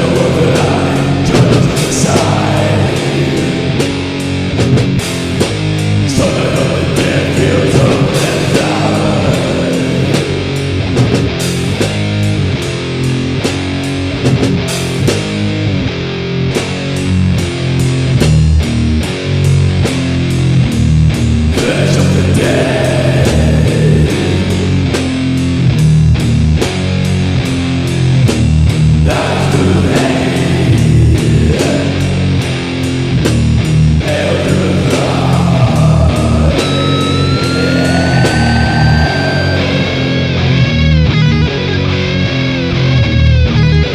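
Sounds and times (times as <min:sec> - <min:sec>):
distorted electric guitars: 0:00.0 - 0:43.9
drum hits: 0:00.1 - 0:03.1, 0:03.7 - 0:06.3, 0:10.1 - 0:12.2
high sustained guitar note sliding: 0:35.8 - 0:43.9.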